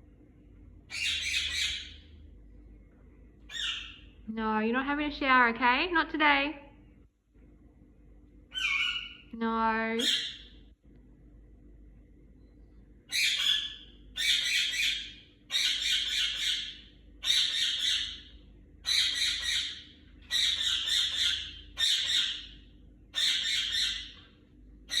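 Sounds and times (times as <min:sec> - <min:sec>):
pet bird screaming: 0:00.9 - 0:02.0, 0:03.5 - 0:04.1, 0:08.5 - 0:09.3, 0:13.1 - 0:24.2.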